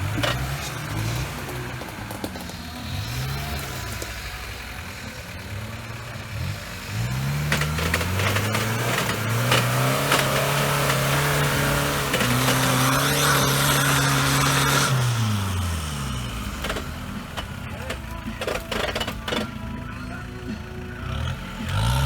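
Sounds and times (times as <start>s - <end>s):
engine revving hard: 0.0s - 19.4s, 21.0s - 22.0s
sharp cracks: 6.4s - 20.0s.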